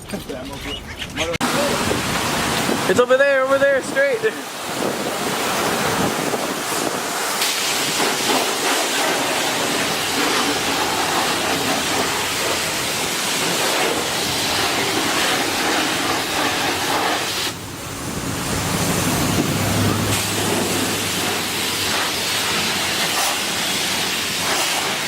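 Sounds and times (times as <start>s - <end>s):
water jets spraying a car: 1.4s - 25.0s.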